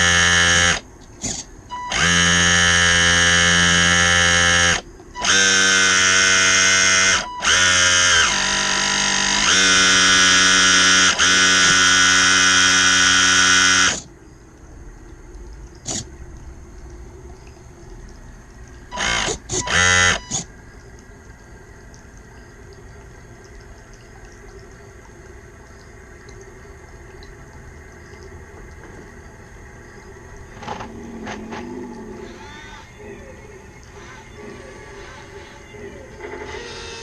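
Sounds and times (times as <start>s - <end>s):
electric motor buzzing: 0.0s - 0.8s, 1.9s - 14.1s, 18.9s - 20.5s.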